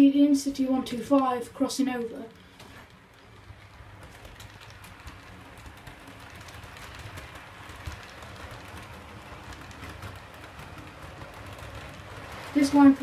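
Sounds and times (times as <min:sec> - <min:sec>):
model train motor and wheels rumbling: 0:00.0 - 0:13.0
clicks from rail joints: 0:02.3 - 0:13.0.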